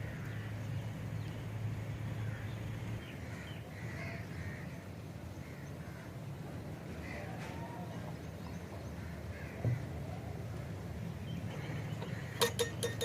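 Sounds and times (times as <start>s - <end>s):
crows cawing: 0.0s - 0.6s, 2.2s - 2.5s, 3.2s - 4.8s, 9.0s - 9.9s
low steady hum: 0.0s - 13.0s.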